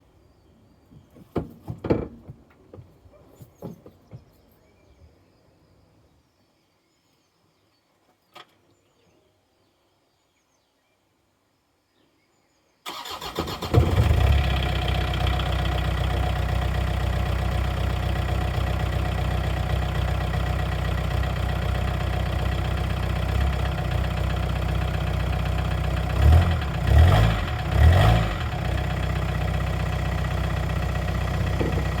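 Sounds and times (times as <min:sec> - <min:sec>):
engine revving: 0:12.9 - 0:16.3, 0:25.7 - 0:30.5
diesel engine starting and idling: 0:12.9 - 0:32.0.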